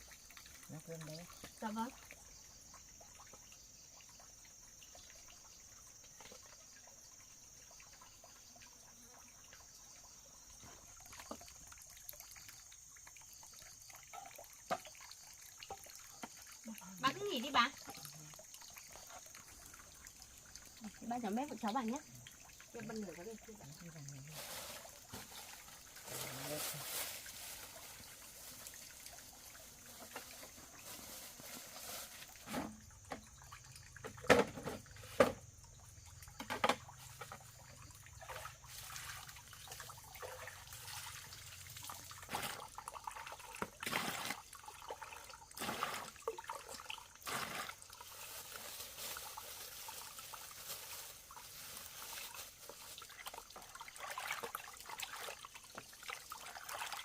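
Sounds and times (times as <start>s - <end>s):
water trickling and pouring: 0.0s - 57.0s.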